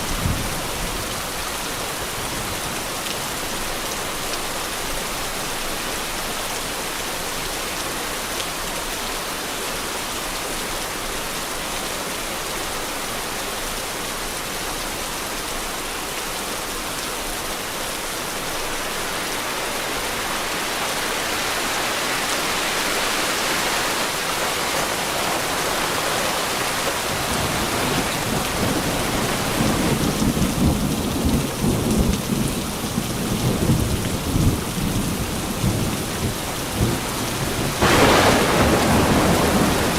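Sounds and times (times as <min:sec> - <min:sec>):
heavy rain: 0:00.0 - 0:39.9
deep rumble of thunder: 0:24.9 - 0:39.9.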